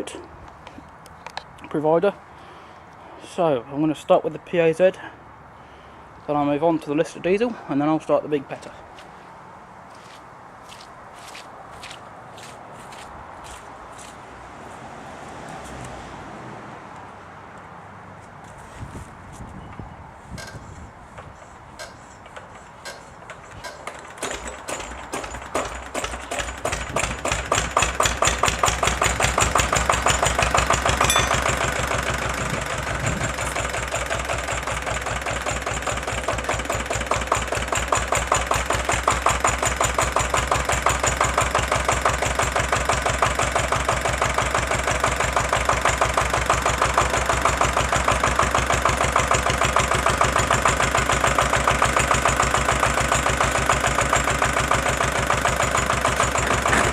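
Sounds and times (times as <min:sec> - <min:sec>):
diesel engine starting and running: 0:20.3 - 0:56.9.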